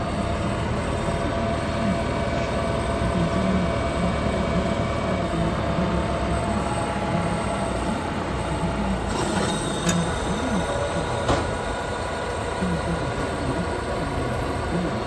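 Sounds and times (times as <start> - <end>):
diesel engine working under load: 0.0 - 15.0.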